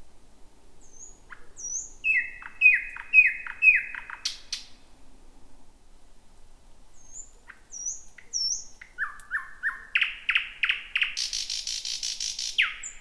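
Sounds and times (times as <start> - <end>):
thrush nightingale singing: 0.8 - 4.8, 7.0 - 13.0.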